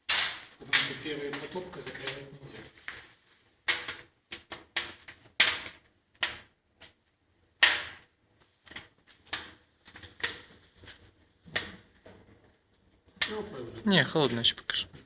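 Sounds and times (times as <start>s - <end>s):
sharp snaps and pops of fire: 0.0s - 13.6s
wood fire crackling: 0.0s - 15.0s.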